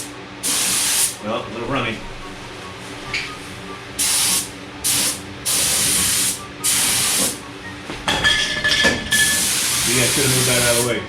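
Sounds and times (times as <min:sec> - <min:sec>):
paint spray gun hissing: 0:00.4 - 0:01.2, 0:04.0 - 0:07.4, 0:09.3 - 0:10.9.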